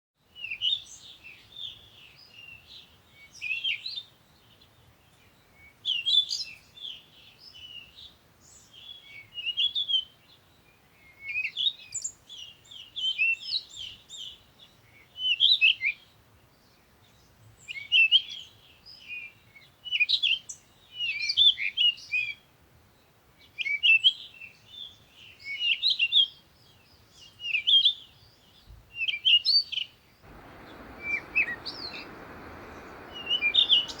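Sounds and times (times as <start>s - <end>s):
songbird chirping: 30.2s - 34.0s.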